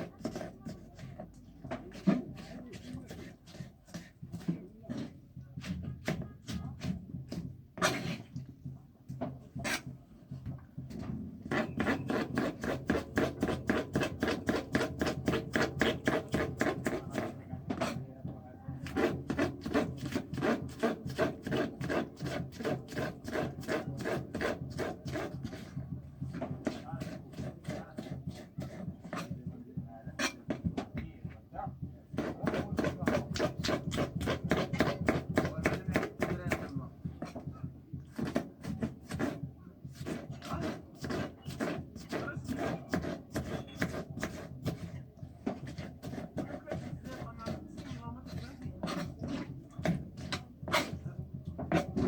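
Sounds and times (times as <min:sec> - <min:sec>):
kitchen tool scraping food: 0:00.0 - 0:08.4, 0:09.6 - 0:10.0, 0:11.4 - 0:18.1, 0:18.8 - 0:29.5, 0:30.2 - 0:30.4, 0:32.1 - 0:52.0.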